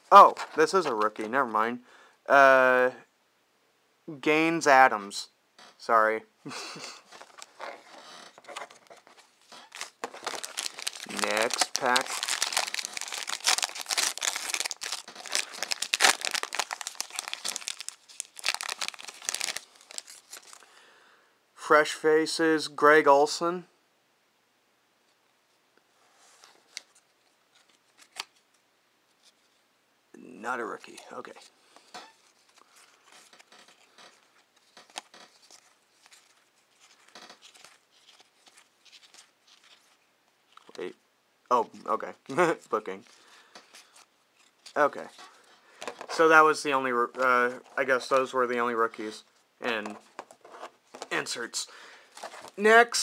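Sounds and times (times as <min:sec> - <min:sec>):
trading cards rustling and flicking: 0:07.1 - 0:20.6, 0:26.4 - 0:28.4, 0:30.7 - 0:40.8, 0:42.4 - 0:51.4, 0:52.1 - 0:52.7
wrapper tearing and crinkling: 0:07.1 - 0:20.6, 0:30.9 - 0:40.8, 0:49.8 - 0:51.2, 0:52.1 - 0:52.6.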